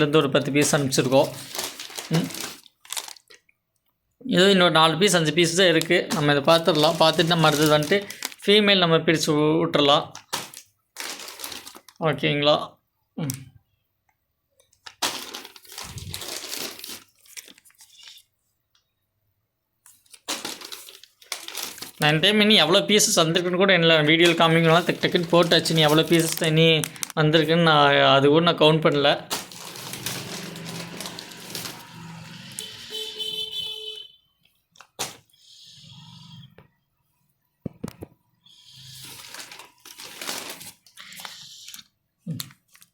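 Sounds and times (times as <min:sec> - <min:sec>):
plastic bag crinkling: 0:00.0 - 0:03.4, 0:05.4 - 0:08.6, 0:10.1 - 0:12.1, 0:14.7 - 0:18.3, 0:19.8 - 0:27.9, 0:28.8 - 0:33.5, 0:38.6 - 0:41.8
road traffic: 0:29.5 - 0:34.0
vehicle horn: 0:30.0 - 0:34.3.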